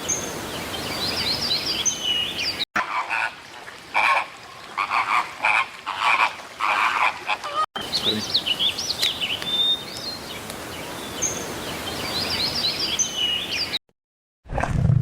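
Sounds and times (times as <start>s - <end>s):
small birds chirping: 0.0s - 2.6s, 7.8s - 13.8s.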